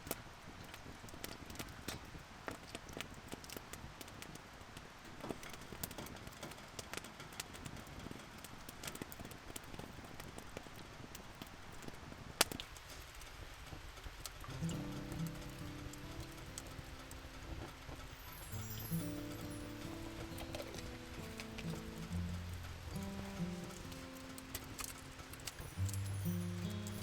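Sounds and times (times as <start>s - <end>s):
firewood crackling and popping: 0.0s - 27.0s
steady hiss: 12.6s - 27.0s.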